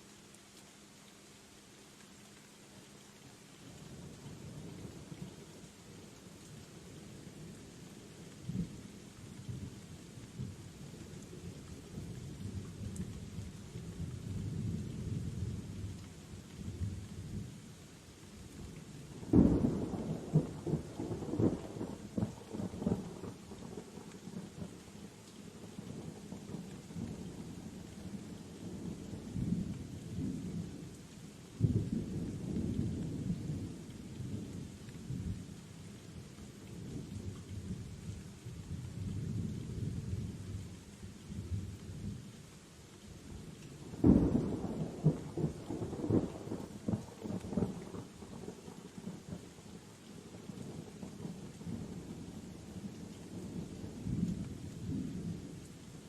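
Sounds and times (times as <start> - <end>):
rain falling: 0.0 - 56.0
thunder rumbling: 43.9 - 49.4.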